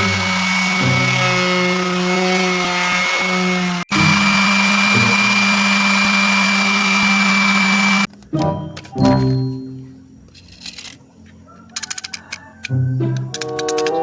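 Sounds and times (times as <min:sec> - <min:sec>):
power tool motor whining: 0:00.0 - 0:08.1.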